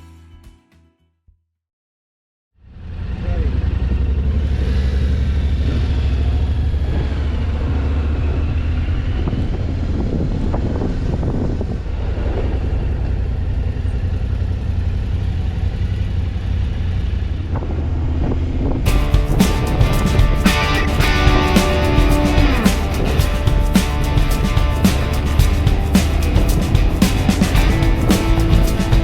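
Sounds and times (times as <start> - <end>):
motorcycle engine and road rumble: 2.7 - 29.0
guitar music: 18.9 - 29.0.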